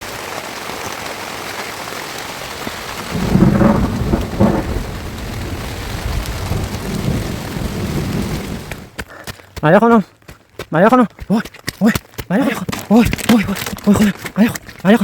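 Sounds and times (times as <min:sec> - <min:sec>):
heavy rain: 0:00.0 - 0:09.0
thunder rumbling: 0:02.4 - 0:09.0.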